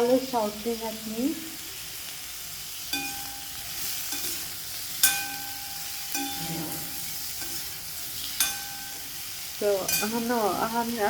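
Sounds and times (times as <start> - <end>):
vegetables sizzling in oil: 0.0 - 11.0
metal spatula clinking on pan: 2.9 - 10.6.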